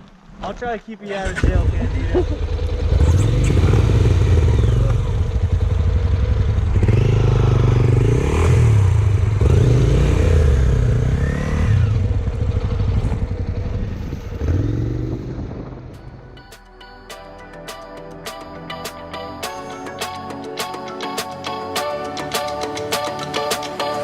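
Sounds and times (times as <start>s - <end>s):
road and wind noise: 0.0s - 16.5s
motorcycle engine revving: 1.2s - 16.2s.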